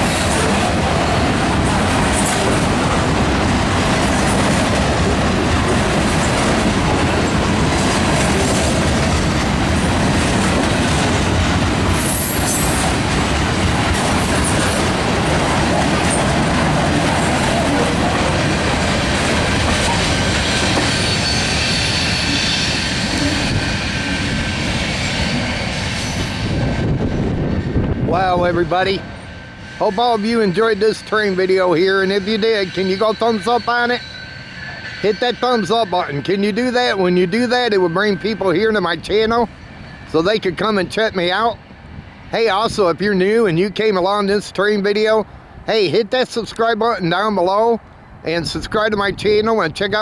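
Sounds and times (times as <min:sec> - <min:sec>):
train wheels clattering over rail joints: 0:00.0 - 0:26.7
train wheel squeal: 0:00.0 - 0:43.1.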